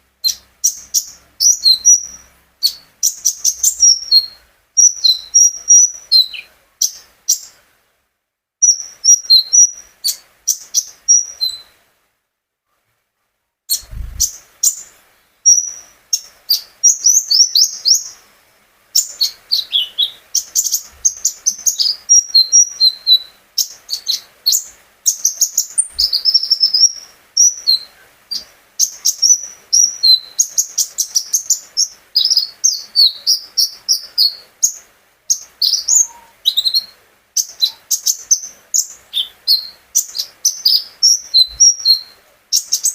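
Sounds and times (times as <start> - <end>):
sunbird chirping and trilling: 0.2 - 7.6, 8.6 - 11.8, 13.7 - 18.3, 18.9 - 42.9
short low thump: 13.8 - 14.3.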